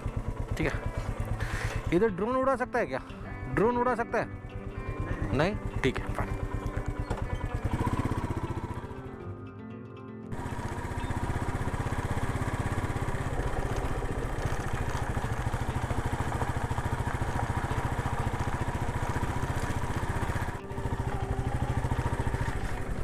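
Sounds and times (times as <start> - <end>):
motorcycle engine running: 0.0 - 9.5, 10.3 - 23.0.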